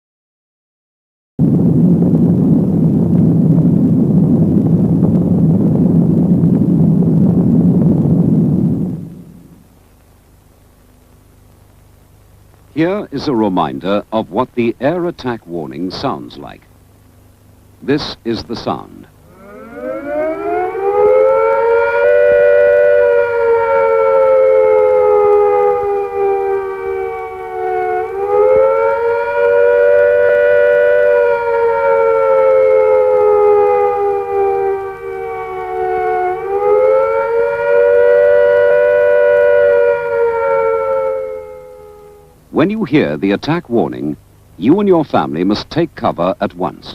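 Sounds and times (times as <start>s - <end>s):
loud low rumble: 1.4s - 9.7s
civil defence siren wailing: 18.8s - 42.6s.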